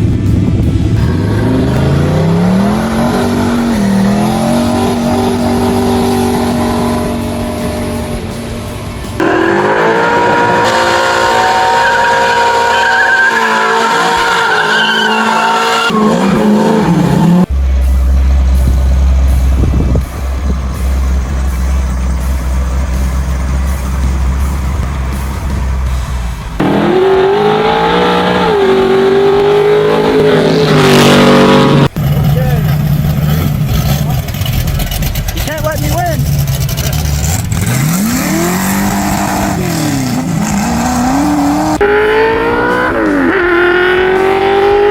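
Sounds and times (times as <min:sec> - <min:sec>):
engine revving: 0:00.0 - 0:44.9
tyres squealing: 0:08.9 - 0:17.5.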